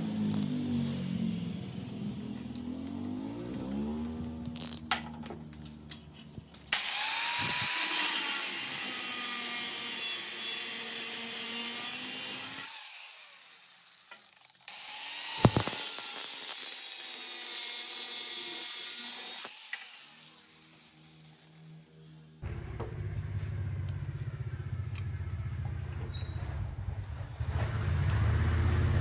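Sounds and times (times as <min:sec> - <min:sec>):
power tool high-pitched whine: 0:06.7 - 0:22.0.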